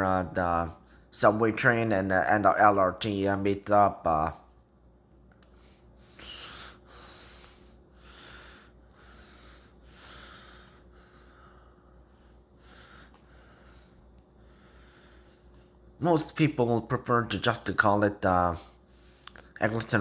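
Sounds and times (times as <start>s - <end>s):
low steady hum: 0.0s - 20.0s
person breathing: 5.4s - 15.7s.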